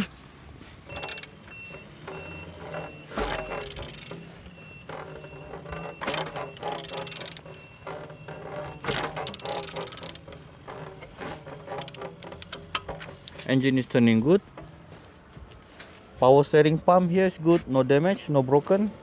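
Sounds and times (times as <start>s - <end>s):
vehicle reversing alarm beeping: 0.8s - 14.4s
metal clanks: 0.9s - 15.5s
ratchet wrench clicking: 1.0s - 1.3s, 3.2s - 4.3s, 5.7s - 10.4s, 11.0s - 13.4s.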